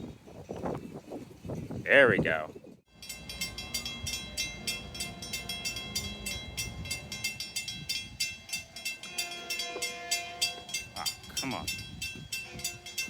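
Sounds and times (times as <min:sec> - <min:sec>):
crossing bell ringing: 0:02.9 - 0:13.0.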